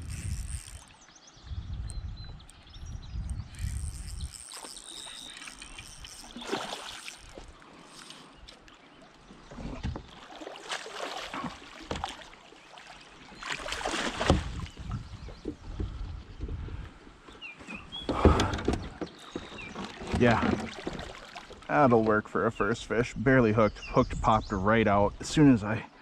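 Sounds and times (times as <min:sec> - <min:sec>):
water splashing: 0:03.6 - 0:14.9, 0:19.3 - 0:22.1
knocks on kayak: 0:14.1 - 0:14.6.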